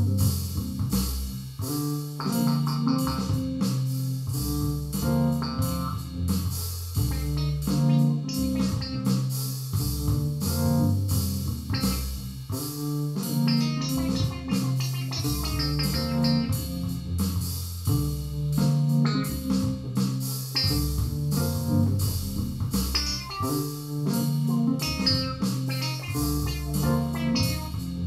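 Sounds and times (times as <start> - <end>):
bass line: 0.0 - 28.0
plucked guitar notes: 2.2 - 3.7, 4.3 - 6.2, 7.0 - 9.2, 11.7 - 16.8, 18.0 - 19.8, 20.6 - 22.3, 22.9 - 28.0.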